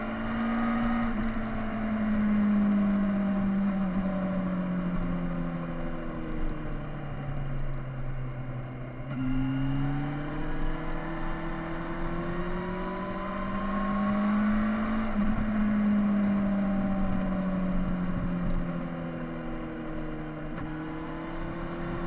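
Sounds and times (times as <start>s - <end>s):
motorcycle engine: 0.0s - 22.0s.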